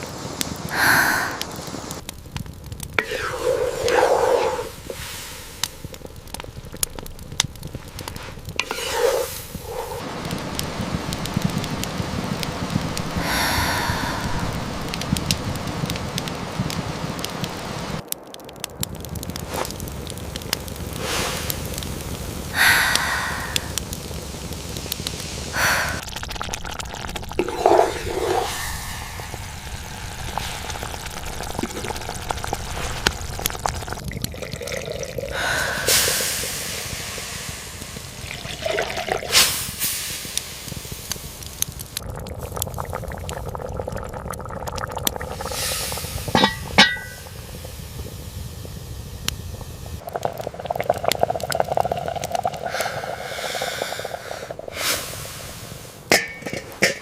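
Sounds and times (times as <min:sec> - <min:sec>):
rain hiss: 0:00.0 - 0:57.0
water pouring and sloshing: 0:03.0 - 0:17.3, 0:25.6 - 0:39.8, 0:56.0 - 0:57.0.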